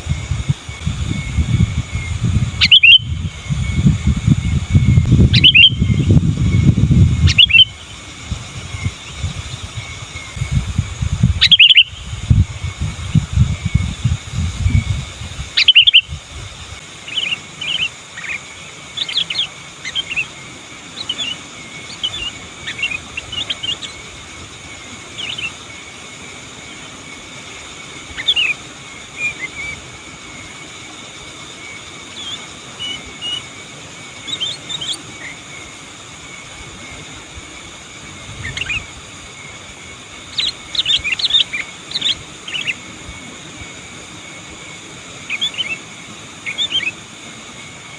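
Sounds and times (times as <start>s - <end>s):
faint steady hiss: 0.0s - 47.9s
bulbul chirping: 0.2s - 8.0s, 11.3s - 12.2s, 15.5s - 16.2s, 40.3s - 42.9s.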